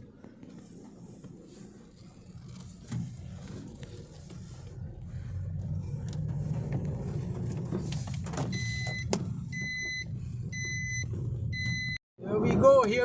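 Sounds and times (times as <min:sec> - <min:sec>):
car engine and road noise: 0:00.0 - 0:13.0
dashboard warning chime beeping: 0:08.5 - 0:12.0.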